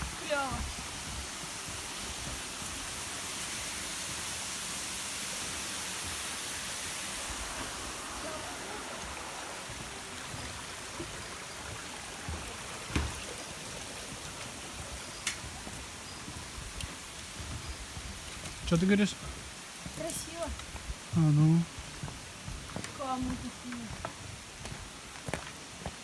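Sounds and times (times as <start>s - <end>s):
rushing stream and waterfall: 0.0s - 26.0s.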